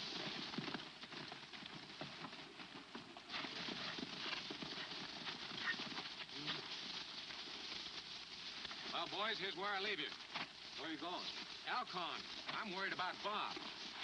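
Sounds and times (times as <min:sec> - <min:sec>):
horse hooves clip-clopping: 0:00.0 - 0:14.0
film soundtrack hiss: 0:06.2 - 0:14.0.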